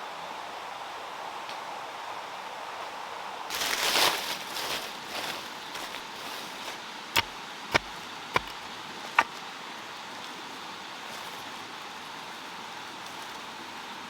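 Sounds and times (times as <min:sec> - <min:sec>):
sharp knocks: 0:07.2 - 0:08.6.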